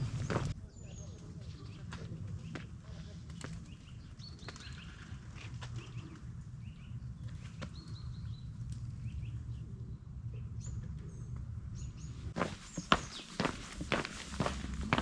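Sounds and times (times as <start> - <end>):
footsteps on a trail: 0.0 - 0.6, 12.4 - 15.0
small birds chirping: 0.0 - 15.0
steady low rumble: 6.2 - 15.0.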